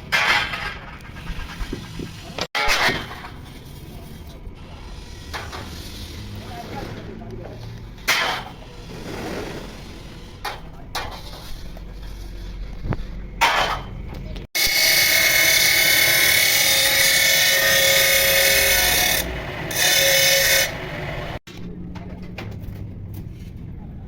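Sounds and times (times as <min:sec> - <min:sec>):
power tool running: 0:14.6 - 0:21.4.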